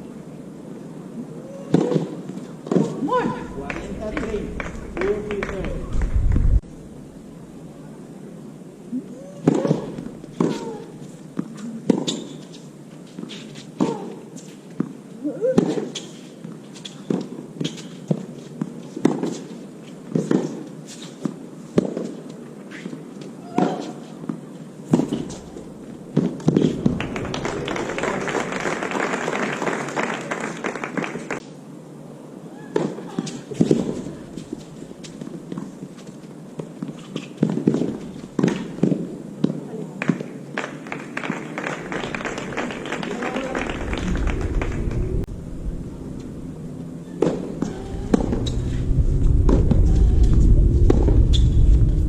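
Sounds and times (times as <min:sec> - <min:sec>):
low rumble: 0:03.1 - 0:07.8, 0:25.2 - 0:29.0, 0:41.8 - 0:52.0
small crowd clapping: 0:03.4 - 0:06.5, 0:26.7 - 0:31.4, 0:40.0 - 0:45.3
tennis ball hitting racket: 0:24.9 - 0:27.0.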